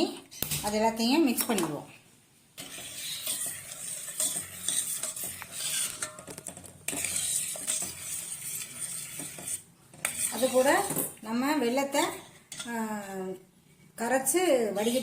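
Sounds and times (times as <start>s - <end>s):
spoon stirring in a pot: 2.6s - 15.0s.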